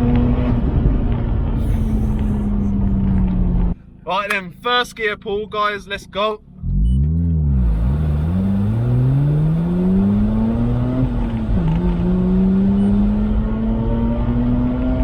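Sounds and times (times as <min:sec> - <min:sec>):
rotary engine at full throttle: 0:01.6 - 0:04.4, 0:05.9 - 0:15.0.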